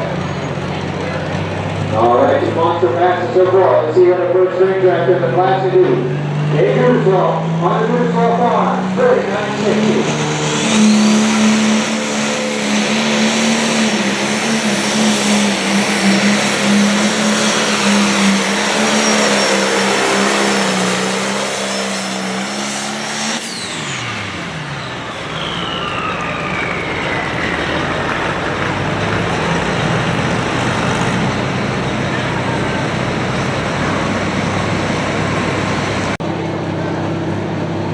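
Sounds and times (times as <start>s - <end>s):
tractor diesel engine under load: 0.0s - 37.9s
high whistle winding down: 9.8s - 28.5s.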